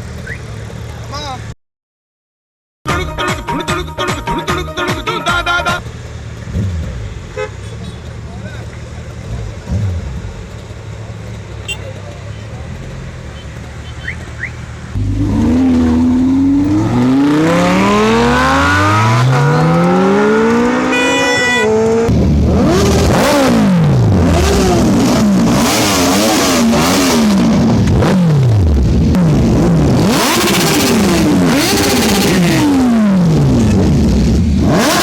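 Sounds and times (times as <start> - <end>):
engine revving hard: 14.9 - 35.0.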